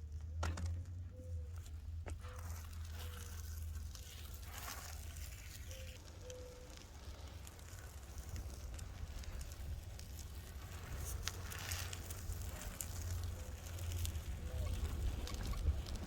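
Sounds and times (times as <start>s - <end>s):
light crackles and clicks: 0.1s - 16.0s
wind buffeting microphone: 8.2s - 16.0s.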